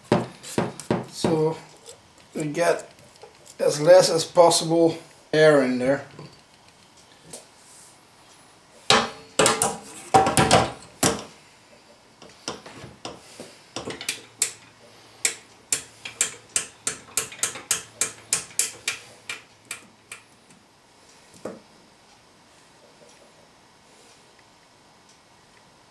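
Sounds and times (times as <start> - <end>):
sausage stuffer clicking: 12.2 - 20.3.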